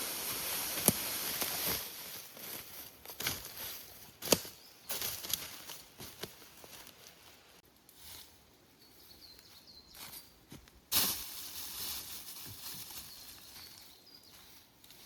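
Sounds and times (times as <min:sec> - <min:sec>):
rustling and brushing: 0:00.0 - 0:08.4, 0:10.9 - 0:15.0.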